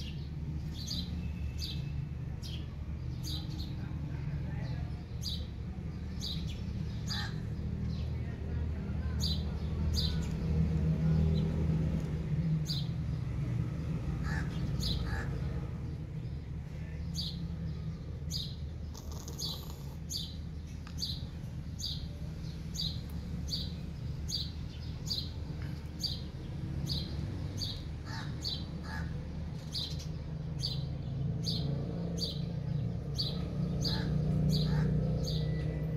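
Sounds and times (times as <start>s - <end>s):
small bird chirping: 18.3s - 27.9s.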